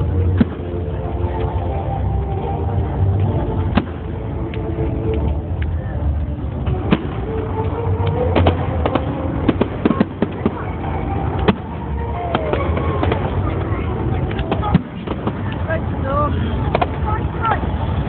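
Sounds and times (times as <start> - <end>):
fireworks cracking and banging: 6.5 - 18.0.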